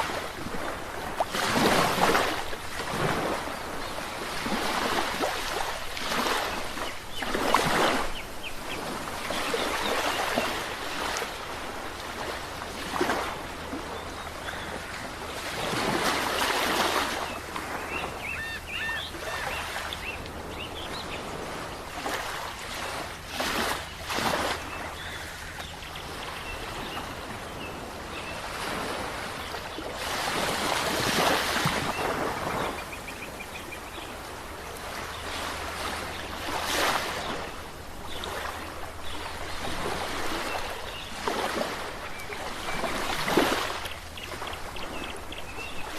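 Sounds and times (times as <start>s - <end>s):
ocean waves breaking: 0.0s - 45.9s.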